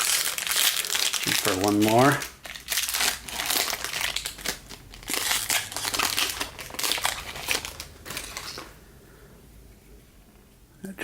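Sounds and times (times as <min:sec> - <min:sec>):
wrapper crinkling and tearing: 0:00.0 - 0:08.8.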